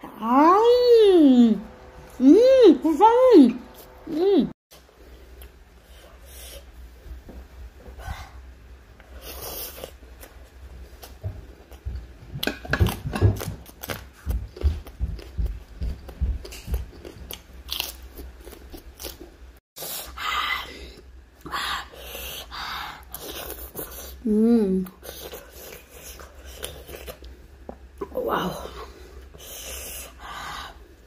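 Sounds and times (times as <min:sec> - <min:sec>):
crunchy chewing of raw vegetables: 0:12.4 - 0:19.5.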